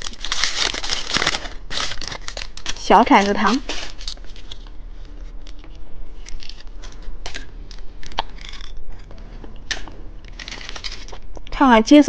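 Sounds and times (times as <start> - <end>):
plastic packaging crinkling: 0.0 - 4.7, 9.7 - 11.5.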